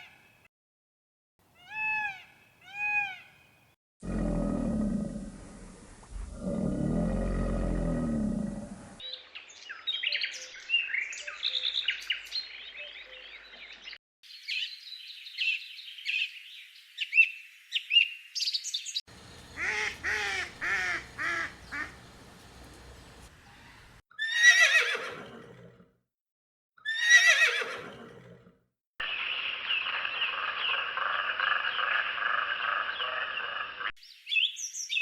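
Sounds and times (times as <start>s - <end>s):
animal roar: 4.0s - 9.0s, 24.5s - 25.9s, 27.4s - 28.6s
birds chirping: 18.4s - 24.0s
repeated bird calls: 18.7s - 24.6s, 29.1s - 35.0s.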